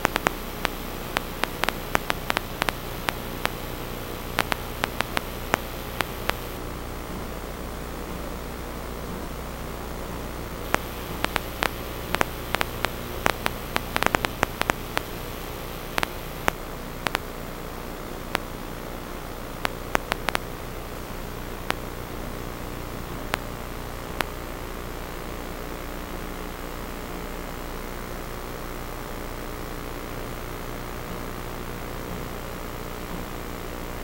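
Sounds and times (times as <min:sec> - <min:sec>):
irregular sharp clicks: 0:00.0 - 0:06.6, 0:10.7 - 0:17.2, 0:19.6 - 0:20.4
steady hiss: 0:00.0 - 0:06.6, 0:10.5 - 0:23.4.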